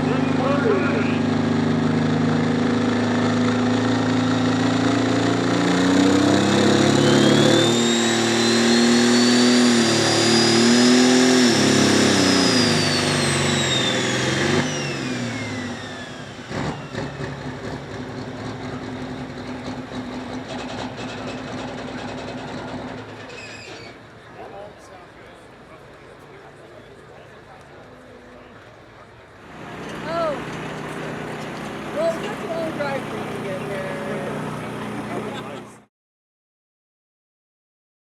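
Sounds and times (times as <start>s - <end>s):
turbo whine: 0.0s - 18.6s
tractor diesel engine: 0.0s - 35.9s.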